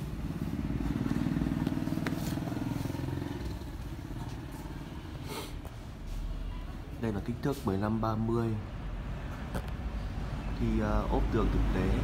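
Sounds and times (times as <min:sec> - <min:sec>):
motorcycle engine idling: 0:00.0 - 0:05.2.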